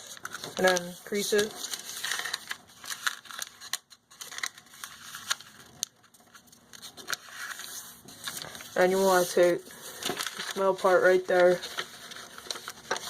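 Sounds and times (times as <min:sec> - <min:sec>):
paper being folded and creased: 0:00.0 - 0:13.0.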